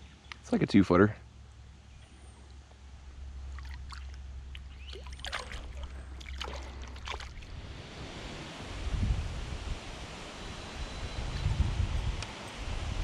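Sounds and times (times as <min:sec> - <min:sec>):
steady low rumble: 0:01.2 - 0:10.2
water splashing and trickling: 0:03.4 - 0:07.7.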